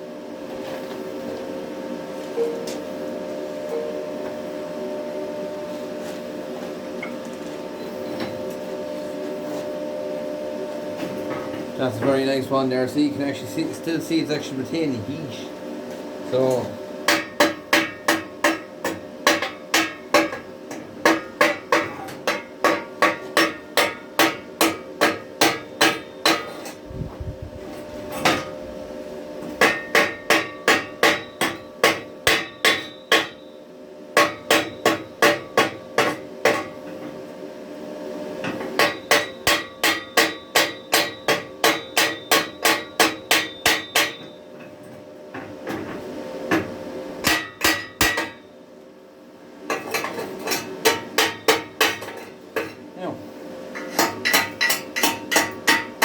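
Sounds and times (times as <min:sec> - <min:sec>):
hammer striking steel: 0:17.1 - 0:26.7, 0:29.6 - 0:33.4, 0:34.2 - 0:36.8, 0:38.8 - 0:44.4, 0:47.2 - 0:48.4, 0:50.8 - 0:52.2, 0:53.8 - 0:56.0.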